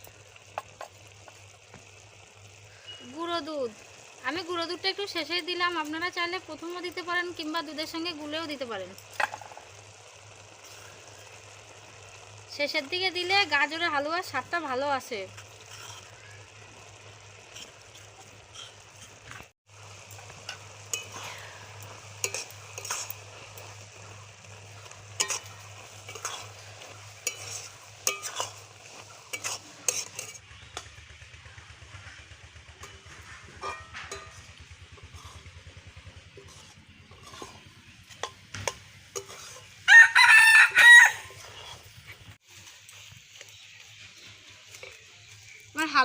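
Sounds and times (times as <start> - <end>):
light sizzle: 0.0 - 46.0
spatula scraping a pan: 15.3 - 19.5, 20.2 - 30.4, 33.1 - 39.8
rooster crowing: 39.8 - 41.5.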